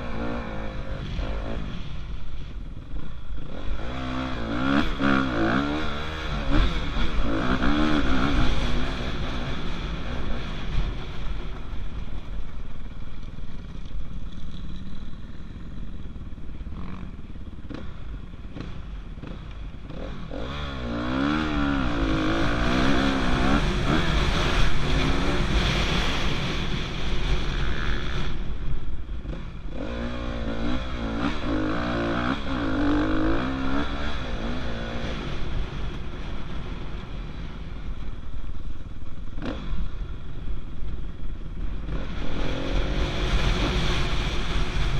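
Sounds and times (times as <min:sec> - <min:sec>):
dirt bike engine revving: 0:00.0 - 0:02.0, 0:02.6 - 0:11.3, 0:13.6 - 0:28.6, 0:29.2 - 0:36.8.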